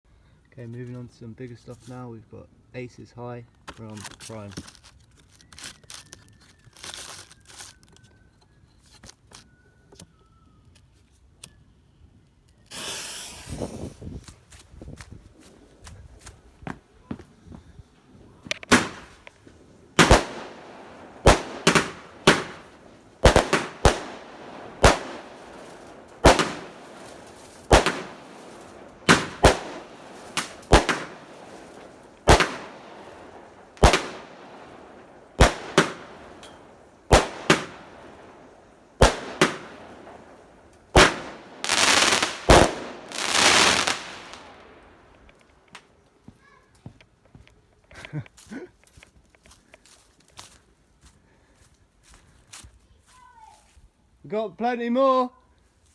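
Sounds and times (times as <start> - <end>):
firework shots with crackle: 12.7 - 14.0, 18.4 - 45.9
dense firework crackling: 18.3 - 45.7.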